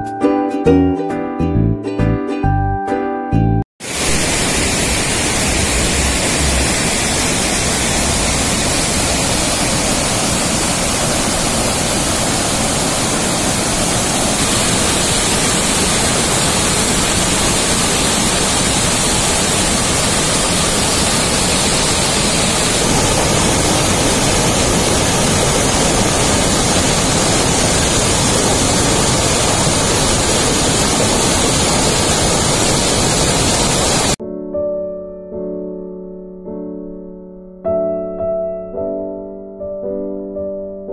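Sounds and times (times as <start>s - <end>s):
waterfall rushing over rocks: 3.8s - 34.2s.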